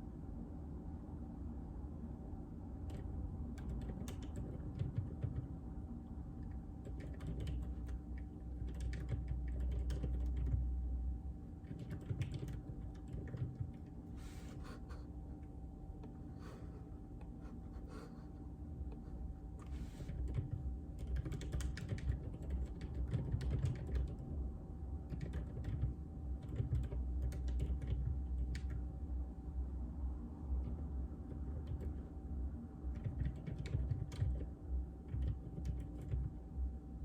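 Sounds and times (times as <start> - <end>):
steady low hum: 0.0 - 37.0
muted keyboard keystrokes: 2.8 - 5.5, 6.8 - 10.7, 11.6 - 14.0, 20.0 - 24.2, 25.1 - 28.8, 30.6 - 32.1, 32.9 - 36.4.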